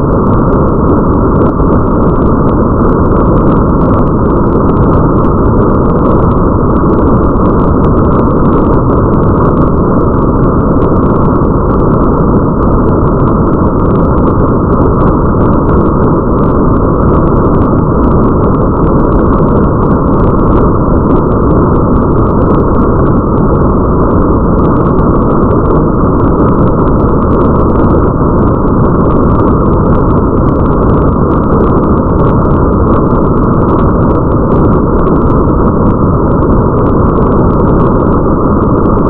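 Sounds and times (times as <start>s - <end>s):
muffled rain: 0.0s - 39.0s.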